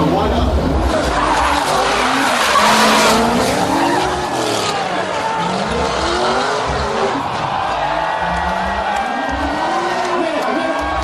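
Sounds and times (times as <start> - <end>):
tyres skidding and squealing: 0.2 - 10.8
engine revving: 0.6 - 7.5.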